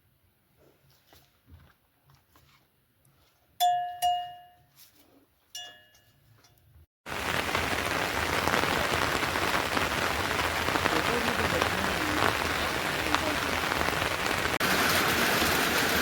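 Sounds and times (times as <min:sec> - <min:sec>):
sharp metallic clinks: 0:03.6 - 0:04.6, 0:05.6 - 0:06.6
heavy rain: 0:07.1 - 0:16.0.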